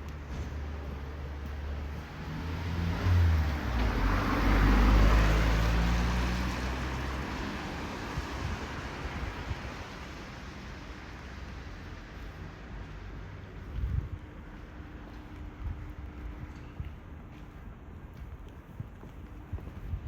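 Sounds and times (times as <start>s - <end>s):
vehicle passing on wet road: 1.6s - 13.5s.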